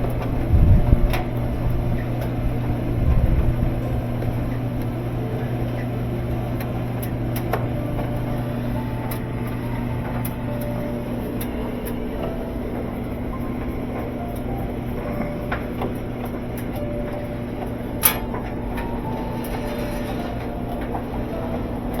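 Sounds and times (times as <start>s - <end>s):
washing machine motor hum: 0.0s - 22.0s.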